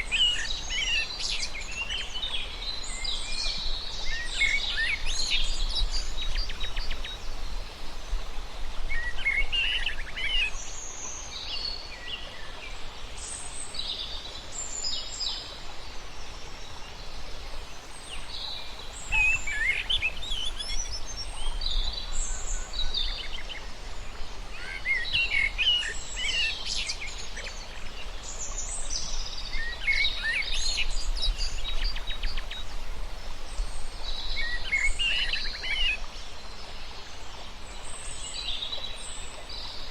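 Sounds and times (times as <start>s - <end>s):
birds chirping and singing: 19.0s - 22.1s.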